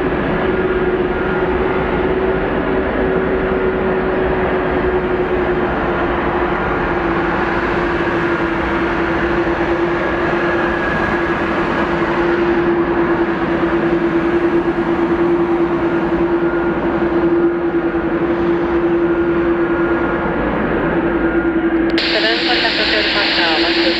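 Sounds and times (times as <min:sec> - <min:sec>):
jet engines roaring: 0:00.0 - 0:23.9.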